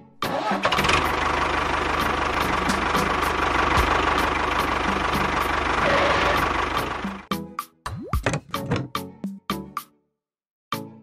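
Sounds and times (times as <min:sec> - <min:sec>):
tractor engine chugging: 0:00.3 - 0:07.3.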